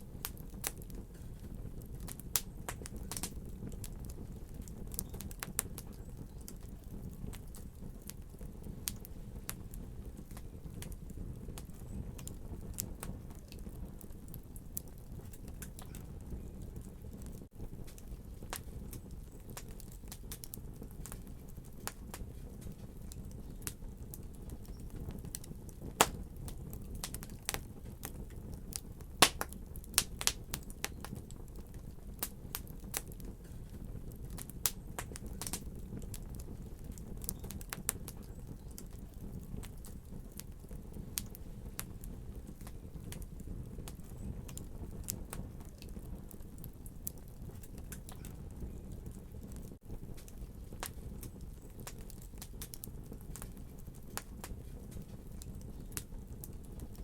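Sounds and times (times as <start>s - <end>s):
low rumble of flames: 0.0s - 57.0s
sharp pops from fire: 0.0s - 57.0s
wood fire crackling: 0.0s - 57.0s.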